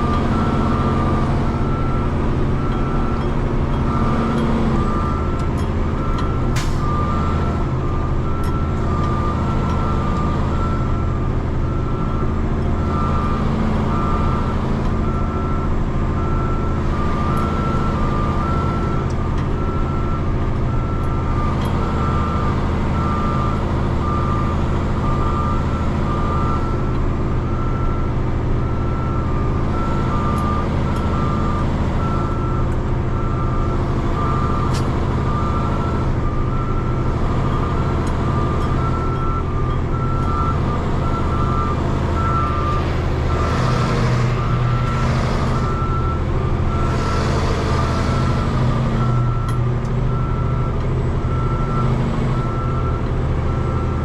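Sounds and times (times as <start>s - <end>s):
diesel truck engine running: 0.0s - 54.0s
backup alarm beeping: 6.0s - 10.8s, 34.2s - 47.0s.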